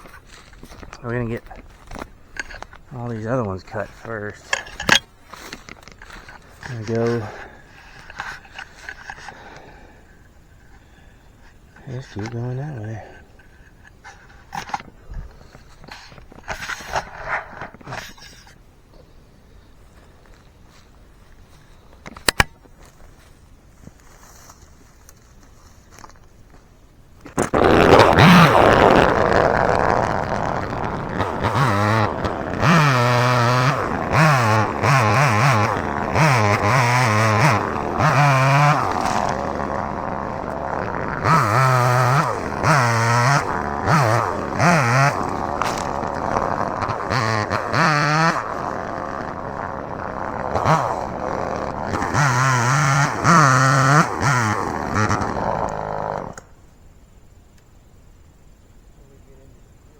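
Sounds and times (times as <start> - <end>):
chainsaw revving: 0.0 - 18.5, 27.3 - 56.5.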